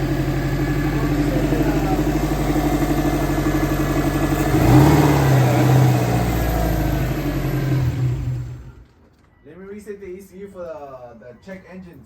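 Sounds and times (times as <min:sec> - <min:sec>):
car engine running: 0:00.0 - 0:08.8.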